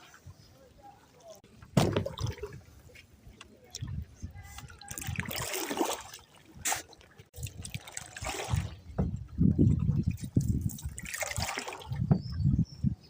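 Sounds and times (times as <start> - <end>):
paddle splashing in water: 1.2 - 2.7, 4.6 - 12.3.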